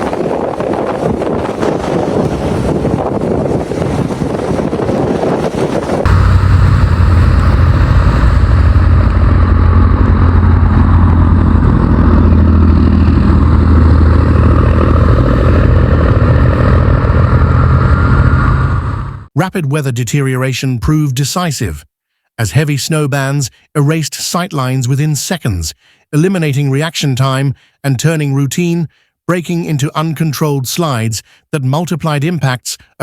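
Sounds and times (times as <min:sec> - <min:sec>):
low vehicle engine drone: 0:00.0 - 0:19.3
wind on microphone: 0:00.0 - 0:19.3.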